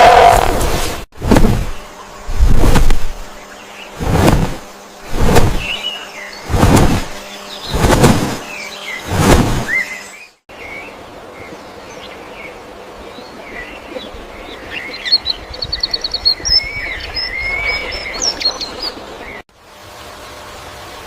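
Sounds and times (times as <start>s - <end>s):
wild birds chirping: 3.3s - 4.0s, 4.8s - 6.5s, 7.1s - 19.4s.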